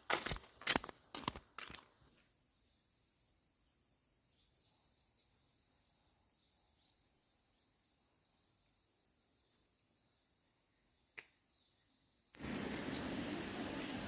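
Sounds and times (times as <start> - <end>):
crunching footsteps: 0.0 - 2.2
insects chirring: 0.0 - 13.8.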